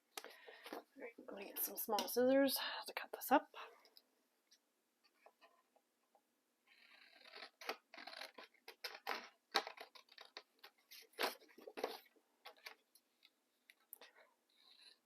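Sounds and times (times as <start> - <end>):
scissors snipping paper: 6.9 - 11.4.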